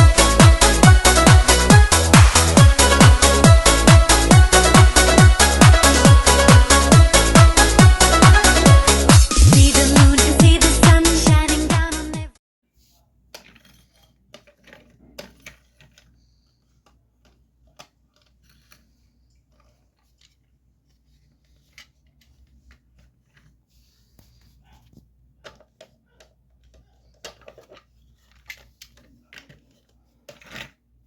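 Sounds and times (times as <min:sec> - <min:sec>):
plastic bricks clicking and rattling: 0:13.4 - 0:18.9, 0:26.6 - 0:30.8.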